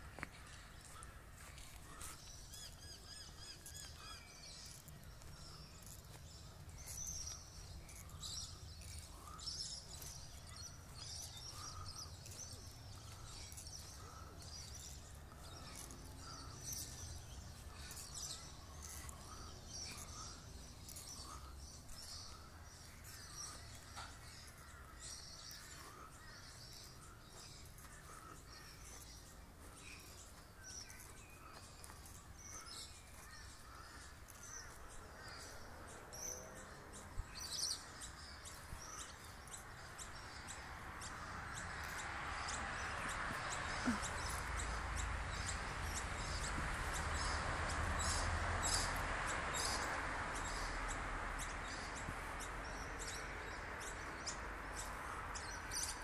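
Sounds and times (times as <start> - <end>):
wild birds chirping: 0.0 - 56.0.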